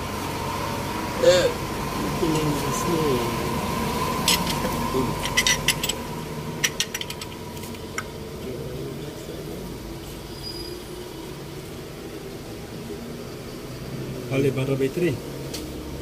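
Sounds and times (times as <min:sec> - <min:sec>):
steady low hum: 0:00.0 - 0:10.3
sharp clicks and knocks: 0:06.6 - 0:08.1.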